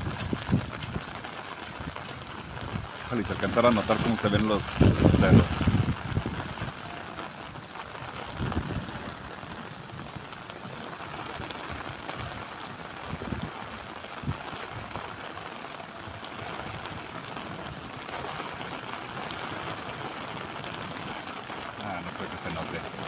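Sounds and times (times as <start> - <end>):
steady rain hiss: 0.0 - 23.0.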